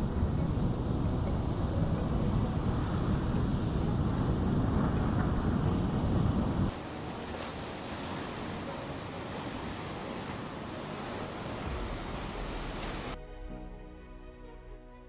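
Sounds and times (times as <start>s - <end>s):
steady rushing noise: 0.0s - 13.2s
soft music with held notes: 13.2s - 15.0s.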